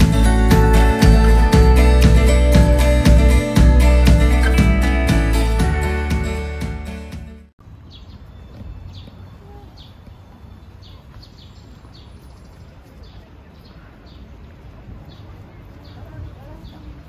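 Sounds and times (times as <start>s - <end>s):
background music: 0.0s - 7.5s
small birds chirping: 7.6s - 17.0s.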